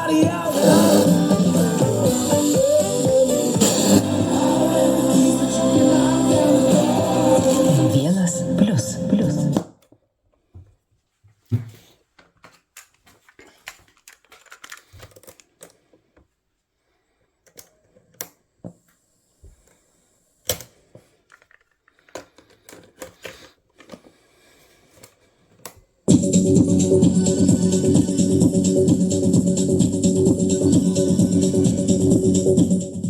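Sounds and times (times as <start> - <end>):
loud music: 0.0 - 9.6, 26.1 - 33.0.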